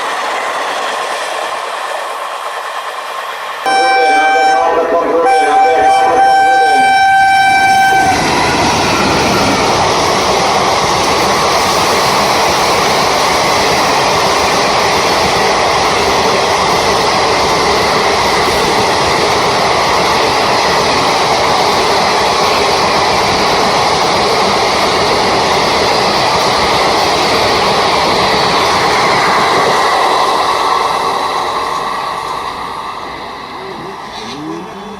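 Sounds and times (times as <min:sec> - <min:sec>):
train rumbling on rails: 0:00.0 - 0:34.9
train horn: 0:03.7 - 0:08.2.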